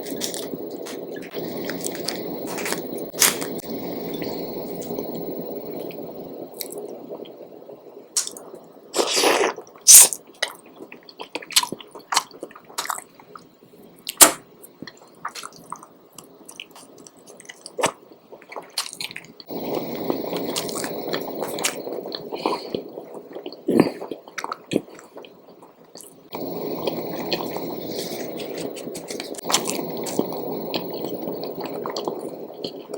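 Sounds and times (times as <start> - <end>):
chewing: 14.8 - 32.9.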